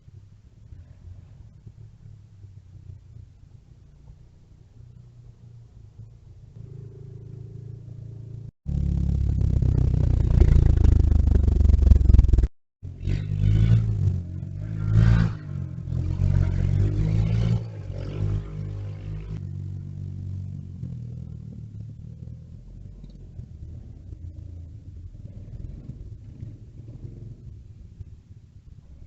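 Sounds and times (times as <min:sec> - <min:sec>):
engine low hum: 0:00.0 - 0:29.0
engine revving: 0:06.6 - 0:27.6.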